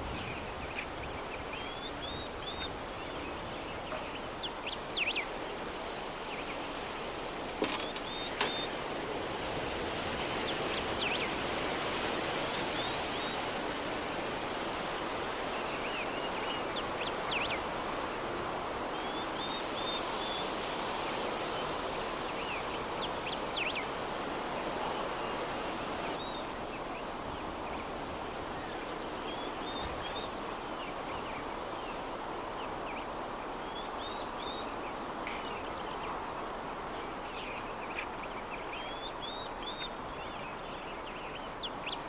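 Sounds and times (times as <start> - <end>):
small birds chirping: 0.0 - 8.8
soft steady breeze: 0.0 - 42.0.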